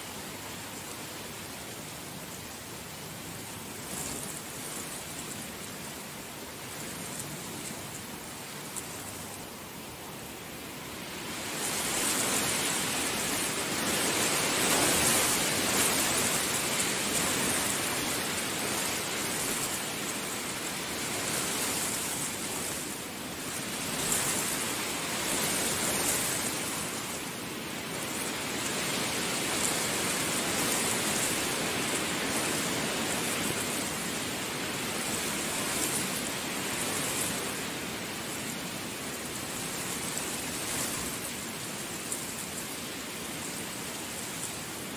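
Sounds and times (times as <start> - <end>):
heavy rain pouring: 0.0 - 44.9.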